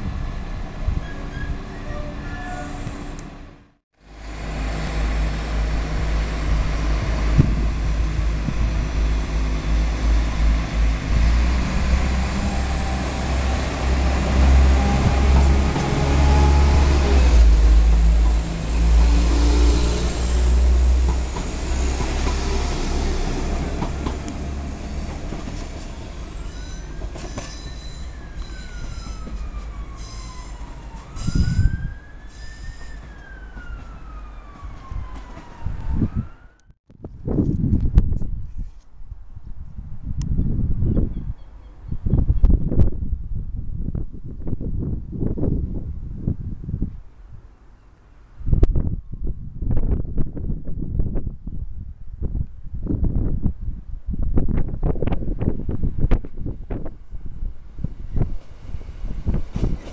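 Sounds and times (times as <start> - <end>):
train low rumble: 0.0 - 36.2, 37.7 - 59.9
high wheel squeal: 0.1 - 3.2, 24.2 - 33.2
siren wailing: 26.4 - 36.7.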